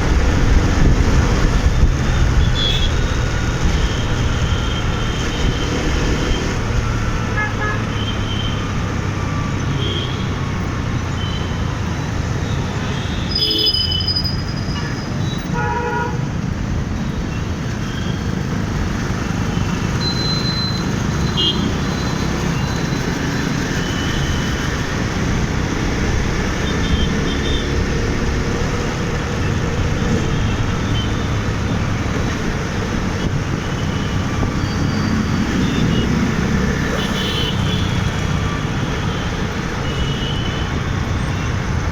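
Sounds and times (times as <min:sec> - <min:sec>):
traffic engines rumbling: 0:00.0 - 0:41.9
vehicle horns honking: 0:12.8 - 0:16.2, 0:20.1 - 0:21.8, 0:34.7 - 0:38.2, 0:39.8 - 0:41.5.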